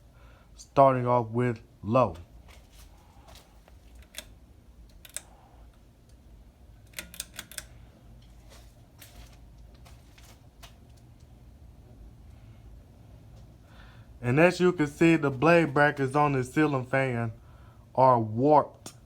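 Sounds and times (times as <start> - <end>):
ceiling fan humming: 0.0 - 19.0.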